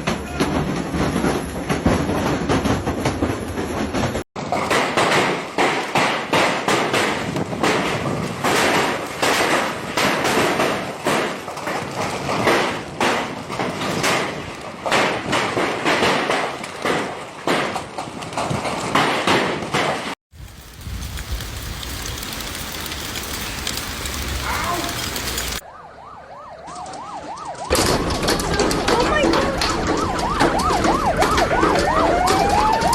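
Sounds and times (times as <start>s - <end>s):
hailstones pelting a hard surface: 4.4s - 19.4s, 20.3s - 25.6s
steady hiss: 20.4s - 25.6s.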